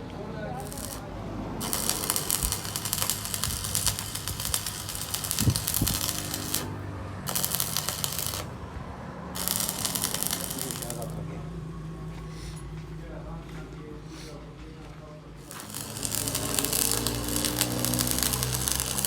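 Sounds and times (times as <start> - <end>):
sharp metalworking crackling: 0.6 - 8.6, 9.4 - 11.2, 15.4 - 19.0.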